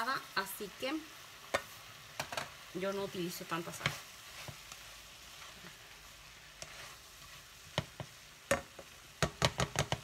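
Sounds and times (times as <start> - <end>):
food sizzling in a saucepan: 0.0 - 10.0
spatula knocking against a pan: 7.7 - 10.0.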